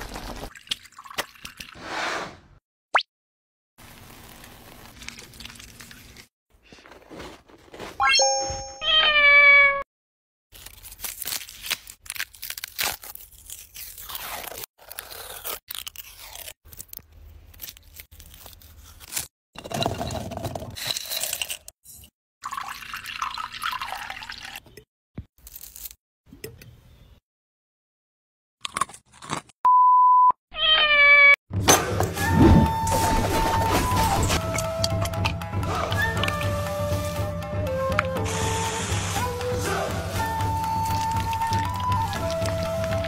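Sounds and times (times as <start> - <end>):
liquid pouring into glass jar: 0.5 - 1.8, 22.4 - 24.7
cat meowing: 8.8 - 9.8, 30.5 - 31.4
garlic skin crackling as peeled: 10.6 - 19.3, 25.4 - 26.0.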